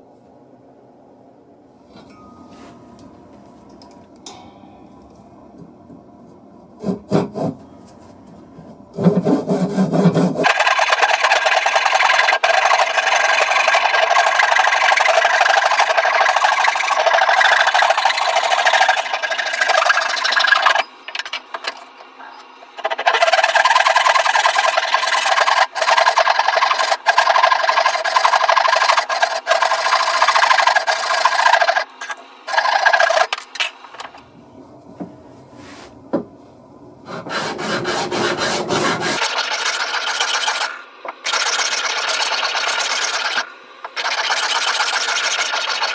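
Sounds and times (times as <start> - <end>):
wood being sanded by hand: 9.0 - 20.8, 22.8 - 31.9, 32.5 - 33.3, 37.1 - 45.9.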